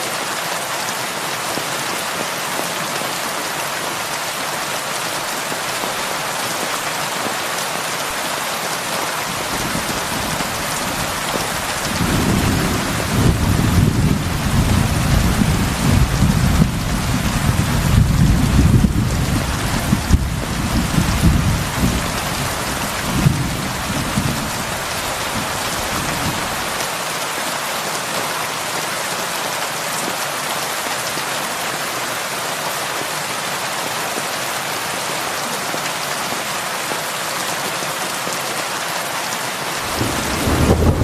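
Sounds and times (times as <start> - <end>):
heavy rain falling: 0.0 - 41.0
thunder rumbling: 9.4 - 26.6, 39.8 - 41.0.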